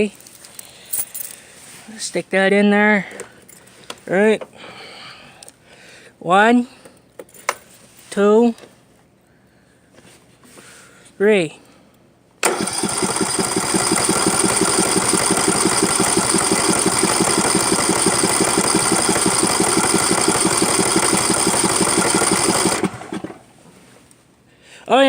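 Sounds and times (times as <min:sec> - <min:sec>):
small gasoline engine running: 0:12.4 - 0:23.5.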